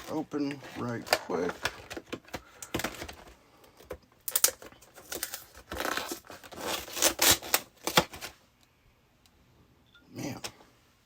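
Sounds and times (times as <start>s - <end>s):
cardboard tearing and crinkling: 4.3s - 8.4s.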